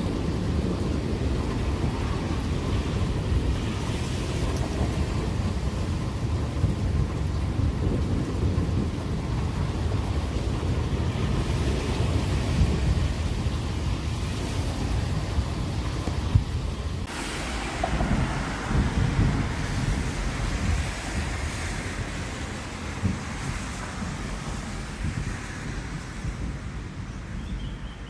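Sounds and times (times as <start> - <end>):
heavy rain: 0.0 - 16.0, 17.0 - 28.0
thunder rumbling: 17.0 - 28.0.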